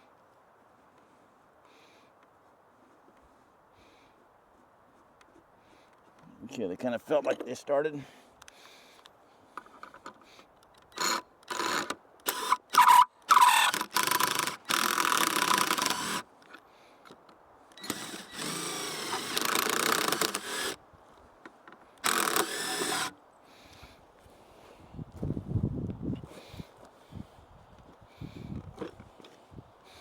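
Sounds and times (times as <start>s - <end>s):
cordless drill driving bolts: 10.8s - 16.3s, 17.7s - 20.8s, 22.0s - 23.2s.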